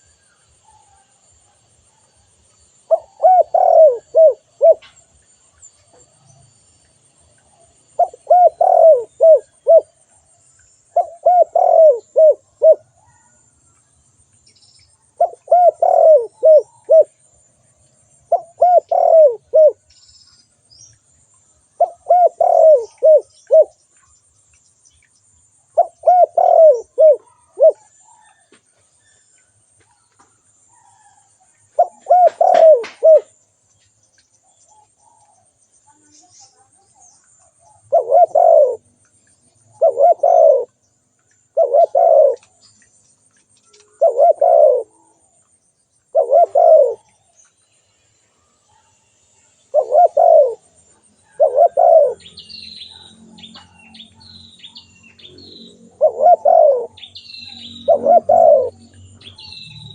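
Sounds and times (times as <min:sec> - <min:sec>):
dove cooing: 0:02.8 - 0:04.9, 0:07.9 - 0:10.0, 0:10.9 - 0:13.4, 0:15.2 - 0:17.2, 0:18.3 - 0:19.8, 0:21.8 - 0:23.8, 0:25.8 - 0:28.4, 0:30.8 - 0:33.4, 0:36.6 - 0:38.9, 0:39.7 - 0:40.8, 0:41.5 - 0:42.6, 0:43.9 - 0:45.2, 0:46.1 - 0:47.1, 0:49.7 - 0:52.3, 0:55.6 - 0:59.9.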